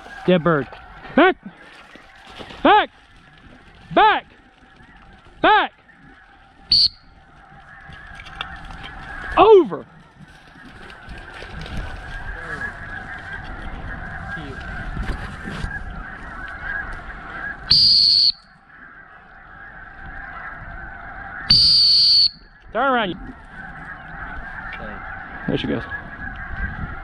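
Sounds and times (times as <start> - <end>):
flock of geese calling: 0.0 - 27.0
sharp high whistle blast: 6.7 - 7.0, 17.7 - 18.5, 21.5 - 22.4.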